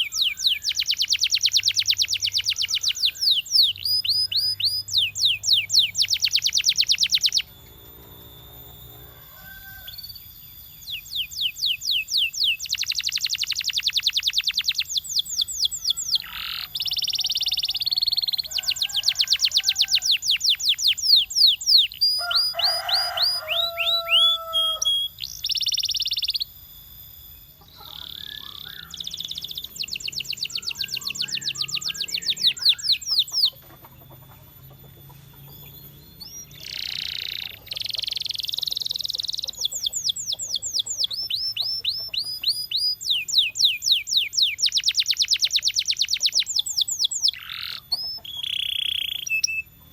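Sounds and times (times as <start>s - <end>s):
canary singing: 0.0s - 49.9s.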